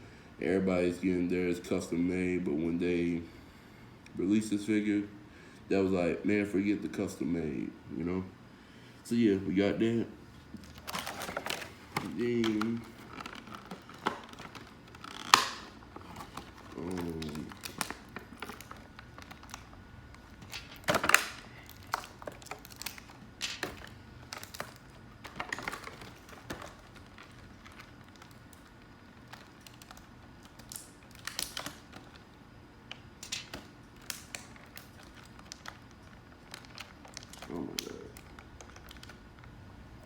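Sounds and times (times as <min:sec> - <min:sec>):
packaging crinkling: 0:10.4 - 0:40.0.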